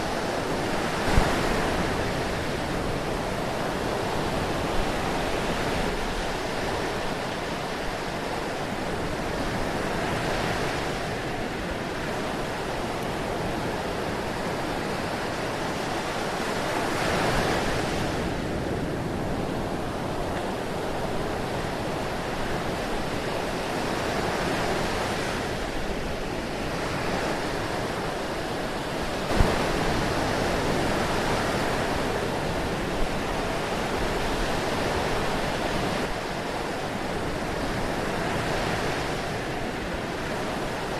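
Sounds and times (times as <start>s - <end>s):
ocean waves washing on shore: 0.0s - 40.9s.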